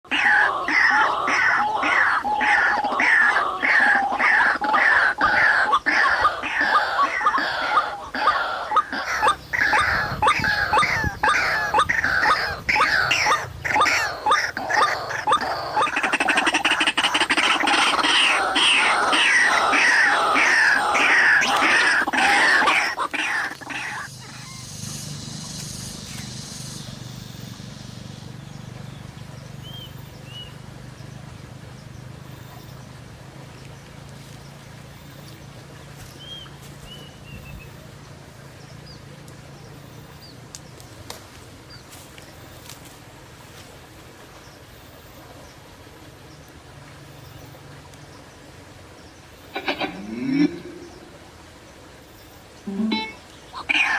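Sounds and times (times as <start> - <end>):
waterhen calling: 0.0 - 53.9
steady low hum: 23.5 - 41.0.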